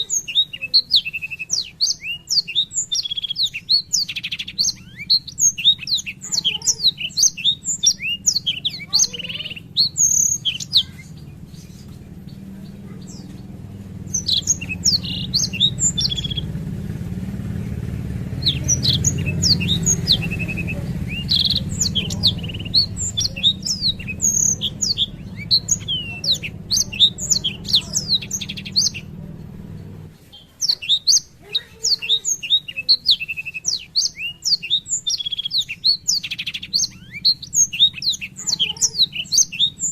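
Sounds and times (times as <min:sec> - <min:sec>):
steady low hum: 0:00.0 - 0:31.8
canary singing rapid trills: 0:00.0 - 0:39.9.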